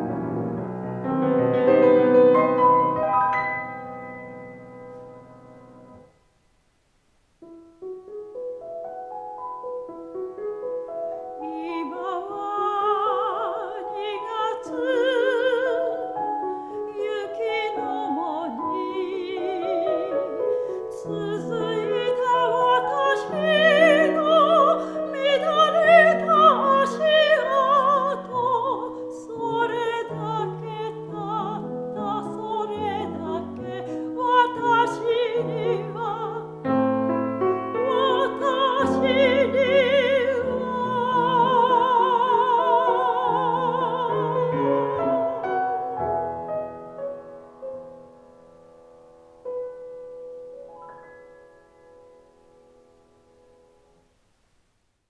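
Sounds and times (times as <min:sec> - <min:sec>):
piano accompaniment: 0:00.0 - 0:06.2, 0:07.4 - 0:54.0
soprano singing with vibrato: 0:11.0 - 0:46.8.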